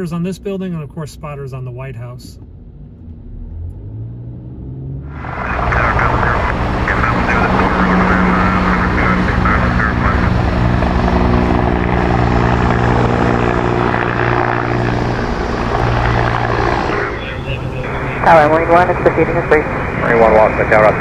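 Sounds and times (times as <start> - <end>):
helicopter flying overhead: 5.1 - 21.0.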